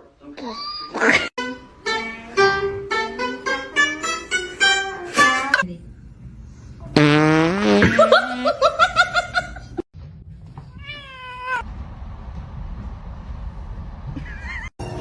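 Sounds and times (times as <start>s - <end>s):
cat meowing: 10.7s - 11.6s.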